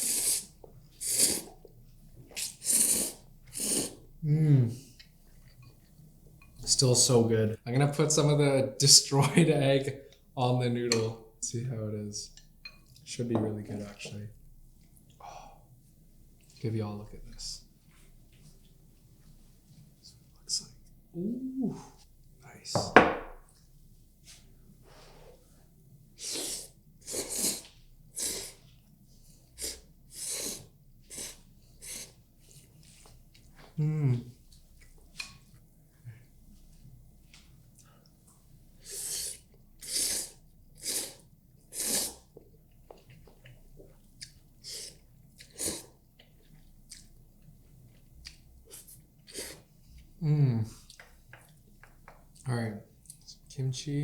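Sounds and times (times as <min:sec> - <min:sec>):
person chewing food: 0:42.0 - 0:53.2.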